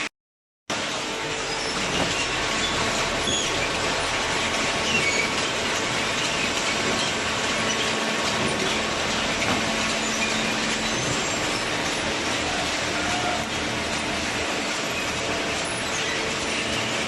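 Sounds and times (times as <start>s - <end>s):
hydraulic baler running: 0.7s - 17.0s.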